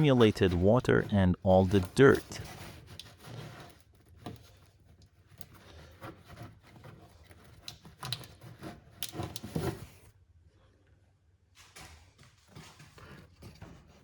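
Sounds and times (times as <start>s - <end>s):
rubbing scraping and light knocks: 0.0s - 10.1s.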